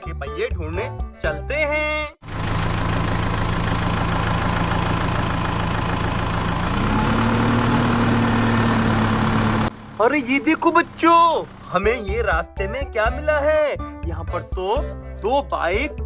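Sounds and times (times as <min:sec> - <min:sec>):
tractor engine running: 0:02.2 - 0:14.7.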